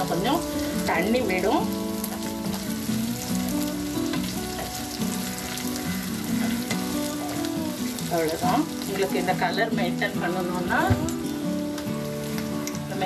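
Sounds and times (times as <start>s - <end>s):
soft background music: 0.0s - 13.0s
vegetables sizzling in oil: 0.0s - 13.0s
wooden spatula scraping pan: 6.2s - 8.0s.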